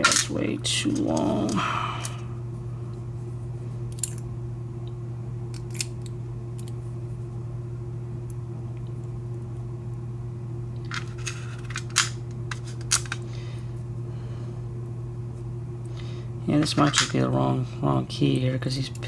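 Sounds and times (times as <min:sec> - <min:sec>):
steady low hum: 0:00.0 - 0:19.0
metallic clicks of lock parts: 0:05.5 - 0:06.8.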